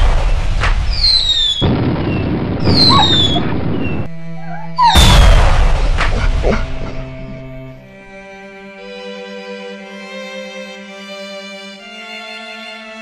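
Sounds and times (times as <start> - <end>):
falling fireworks whistles: 0.0 - 4.1
fireworks bangs: 0.0 - 4.1
steady musical tones: 3.6 - 13.0.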